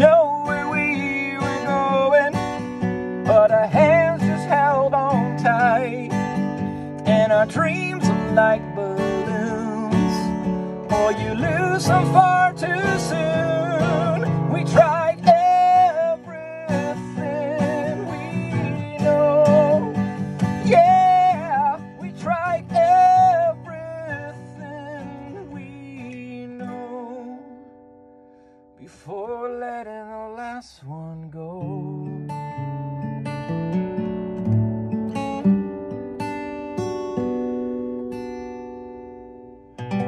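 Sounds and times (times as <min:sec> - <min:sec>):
man singing: 0:00.0 - 0:27.6, 0:28.8 - 0:32.8
acoustic guitar: 0:00.0 - 0:40.0.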